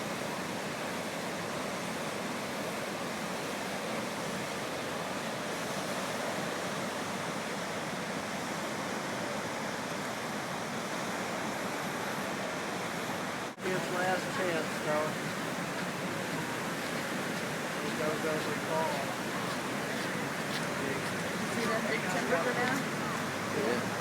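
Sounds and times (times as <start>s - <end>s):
fast river water rushing: 0.0s - 24.0s.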